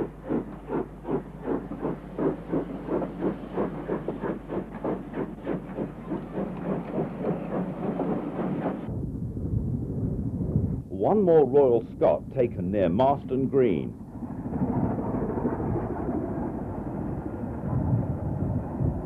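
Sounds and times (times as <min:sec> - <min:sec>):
steam hissing: 0:00.0 - 0:08.9
steam locomotive chuffing: 0:00.0 - 0:08.9, 0:14.0 - 0:19.0.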